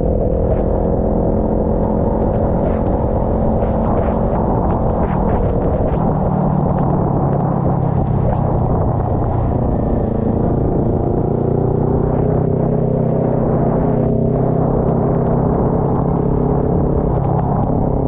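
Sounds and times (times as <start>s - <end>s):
motorcycle engine running: 0.0s - 18.0s
wet road noise: 0.0s - 18.0s
wind noise: 0.0s - 18.0s.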